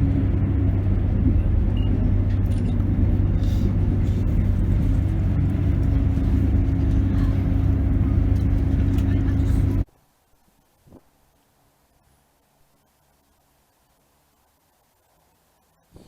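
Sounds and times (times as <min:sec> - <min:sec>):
train rumbling: 0:00.0 - 0:09.9
faint hum: 0:00.0 - 0:16.0.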